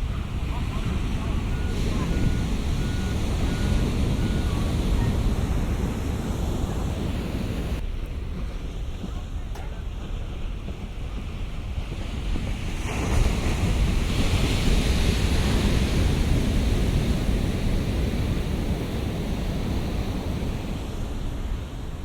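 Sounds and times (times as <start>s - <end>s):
wave breaking: 0.0s - 7.8s
surf rumbling: 0.0s - 22.0s.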